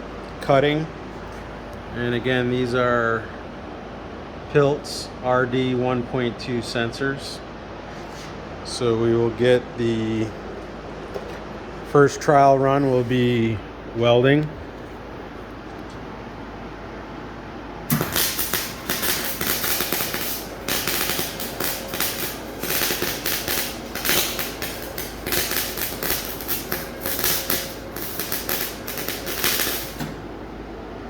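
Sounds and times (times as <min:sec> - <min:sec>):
welding arc crackling: 0:17.9 - 0:30.4.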